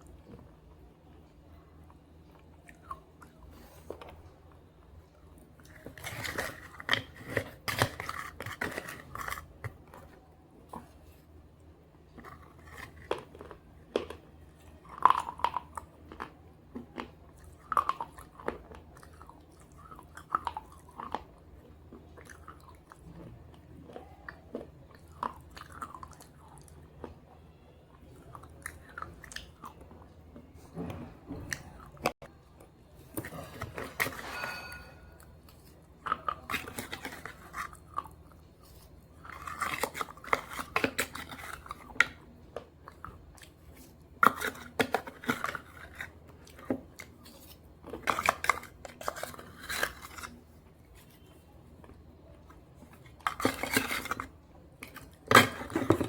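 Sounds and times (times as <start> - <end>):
crunching and chewing: 0.0 - 56.0.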